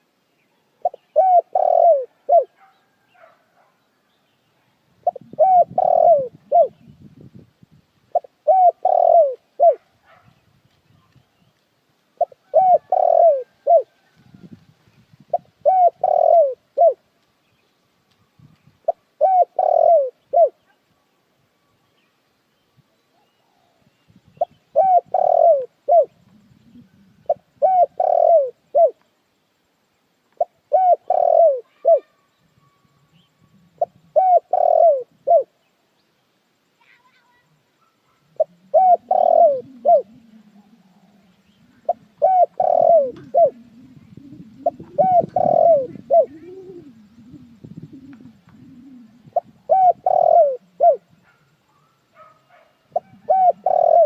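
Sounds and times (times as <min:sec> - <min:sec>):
dove cooing: 0:00.8 - 0:03.4, 0:05.0 - 0:07.3, 0:08.1 - 0:10.3, 0:12.2 - 0:14.6, 0:15.2 - 0:17.0, 0:18.8 - 0:20.8, 0:23.2 - 0:29.0, 0:30.4 - 0:35.6, 0:37.8 - 0:54.0.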